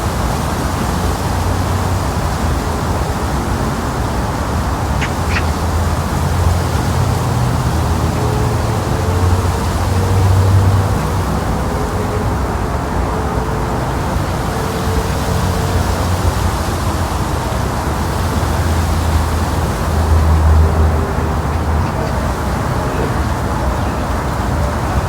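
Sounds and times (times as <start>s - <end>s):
low city rumble: 0.0s - 25.0s.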